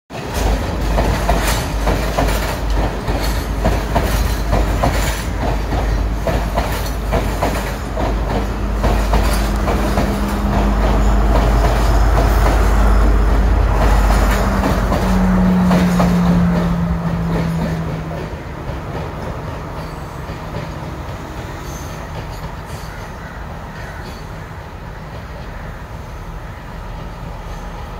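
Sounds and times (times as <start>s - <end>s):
wheels rumbling and clicking on rails: 0.1s - 27.9s
diesel engine hum: 7.1s - 19.8s.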